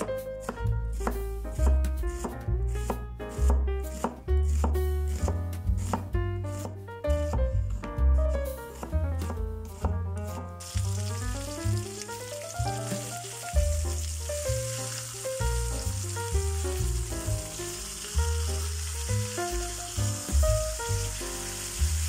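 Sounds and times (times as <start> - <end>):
piano and bass background music: 0.0 - 22.0
knife slicing on cutting board: 0.4 - 6.6
chicken frying in oil: 10.6 - 22.0.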